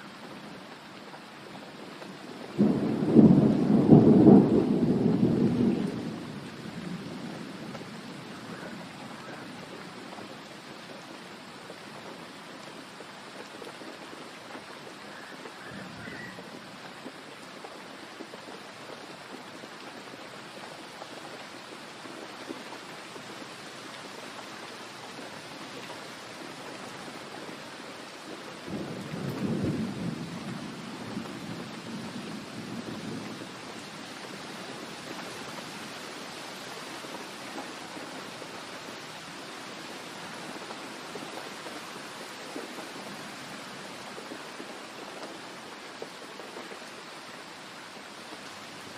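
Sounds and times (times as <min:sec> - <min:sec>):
steady rain falling: 0:00.0 - 0:48.9
low roll of thunder: 0:02.5 - 0:10.2, 0:28.7 - 0:35.5.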